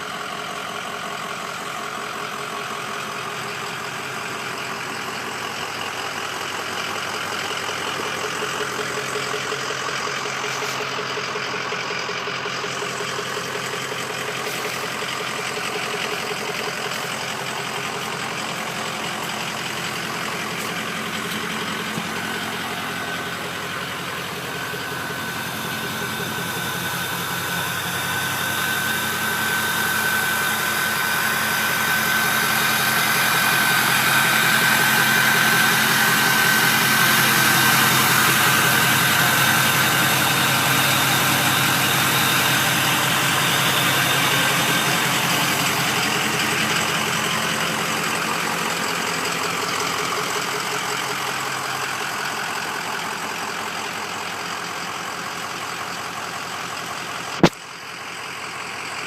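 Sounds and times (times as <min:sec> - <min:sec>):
diesel engine idling: 0:00.0 - 0:59.0
high turbo whistle: 0:13.2 - 0:48.8.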